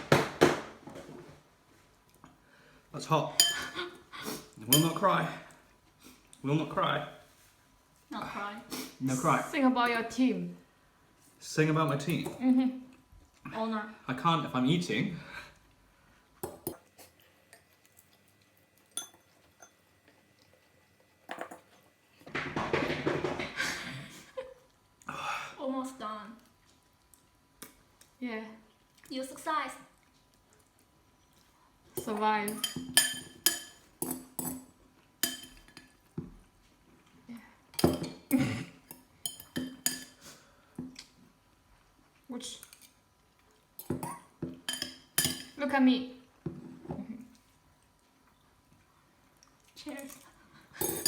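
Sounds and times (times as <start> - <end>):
utensils clinking against a bowl: 3.4 - 3.8, 4.6 - 5.1, 18.8 - 19.8, 32.0 - 36.0, 37.8 - 40.2, 43.8 - 45.6, 50.8 - 51.0.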